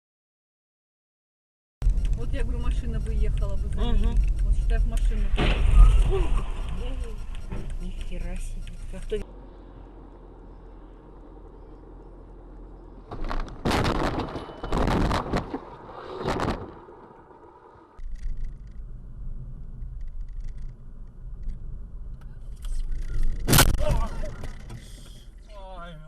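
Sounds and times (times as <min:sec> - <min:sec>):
scattered clicks: 0:01.8 - 0:05.3, 0:06.6 - 0:09.2, 0:18.0 - 0:18.9, 0:19.8 - 0:25.2
road and engine noise: 0:01.8 - 0:26.0
vehicle crashing and scraping: 0:05.2 - 0:07.8, 0:10.2 - 0:18.6.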